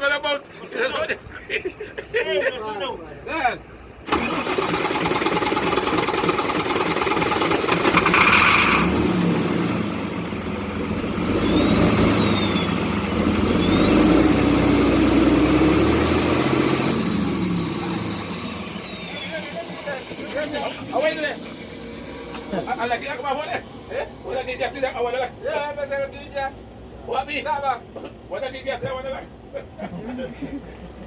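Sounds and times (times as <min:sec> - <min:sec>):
diesel truck engine revving: 0:03.6 - 0:27.6.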